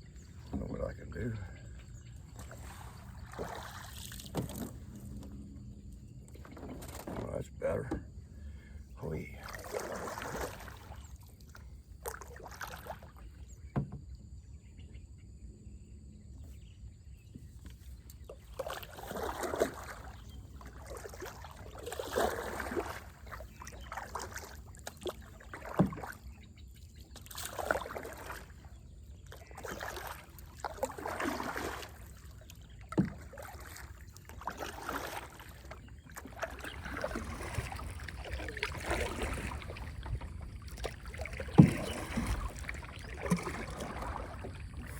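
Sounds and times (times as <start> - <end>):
paddle swishing in water: 0.0 - 13.9, 17.3 - 44.9
paddle knocking against hull: 0.2 - 0.9, 3.3 - 5.4, 6.3 - 8.2, 12.0 - 14.2, 17.3 - 26.4, 30.6 - 44.9.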